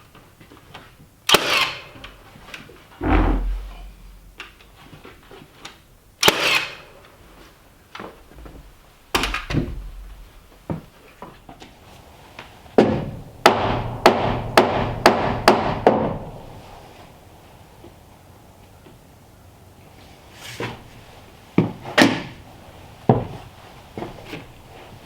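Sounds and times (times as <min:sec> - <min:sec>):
blows striking timber: 0:12.4 - 0:16.8.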